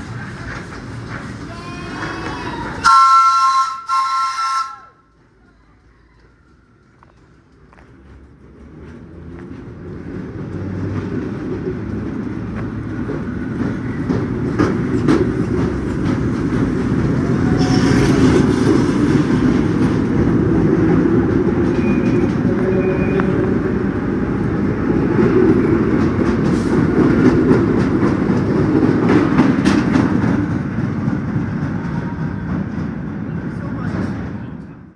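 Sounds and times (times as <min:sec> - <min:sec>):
subway train rumbling: 0:00.0 - 0:34.9
wheels clicking over rails: 0:05.0 - 0:23.4.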